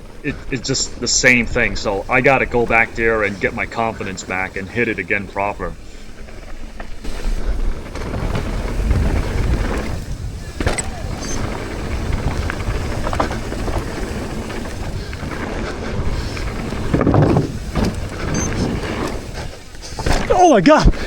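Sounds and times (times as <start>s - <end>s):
tyres rumbling over dirt: 0.0s - 21.0s
wind buffeting microphone: 0.0s - 21.0s
bike landing thumps: 7.0s - 21.0s.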